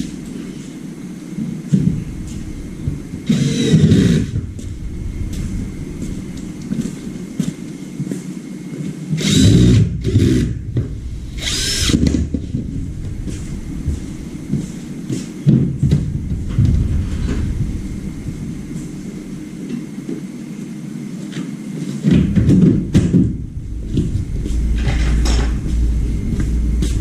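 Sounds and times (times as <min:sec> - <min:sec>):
steady low hum: 0:00.0 - 0:27.0
power tool running: 0:02.1 - 0:07.5, 0:09.2 - 0:15.2.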